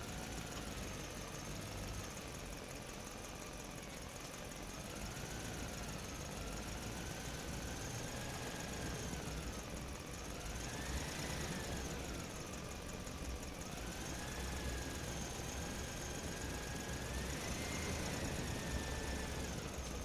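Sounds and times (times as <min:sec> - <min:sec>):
motor whining over rumble: 0:05.0 - 0:20.0.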